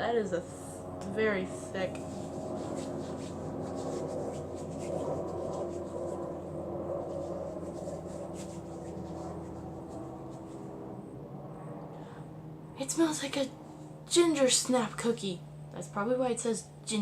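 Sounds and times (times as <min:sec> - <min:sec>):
hands rubbing lotion: 0:01.9 - 0:10.6.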